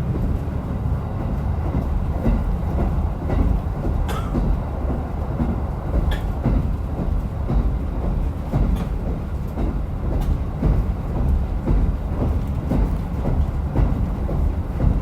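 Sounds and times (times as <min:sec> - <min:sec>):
railcar engine and wheels rumble: 0:00.0 - 0:15.0
sharp click from rails: 0:03.9 - 0:04.6, 0:05.4 - 0:06.6, 0:08.6 - 0:10.4.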